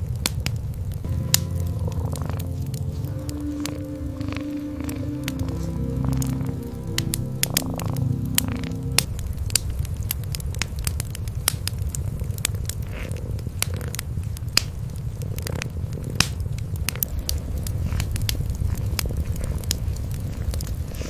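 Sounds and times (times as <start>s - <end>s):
wood fire crackling: 0.0s - 21.0s
cats purring: 1.4s - 9.1s, 15.1s - 21.0s.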